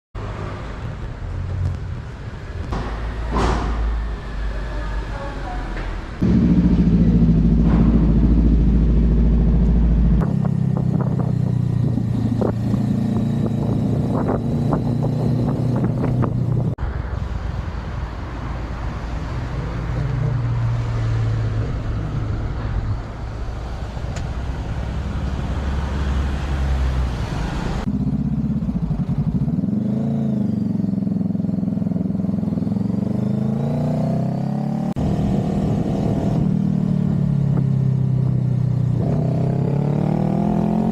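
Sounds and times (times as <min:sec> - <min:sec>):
vehicle engine running: 0:06.2 - 0:16.8, 0:27.6 - 0:29.8.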